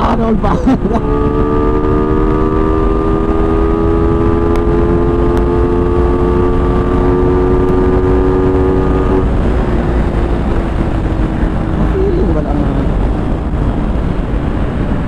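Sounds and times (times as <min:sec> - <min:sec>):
motorcycle engine at high revs: 0:00.0 - 0:15.0
wind rush on microphone: 0:00.0 - 0:15.0.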